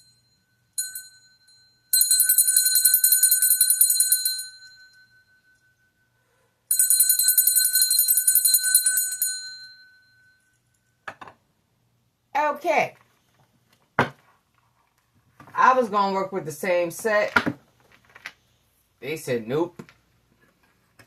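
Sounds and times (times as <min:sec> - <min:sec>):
small hand bell ringing: 0:00.0 - 0:11.0.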